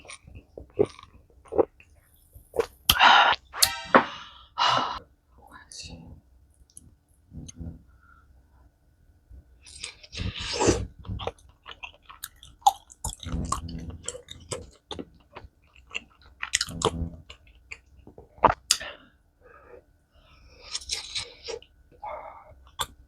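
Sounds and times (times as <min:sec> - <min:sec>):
person chewing food: 0:00.0 - 0:01.9, 0:09.6 - 0:18.8.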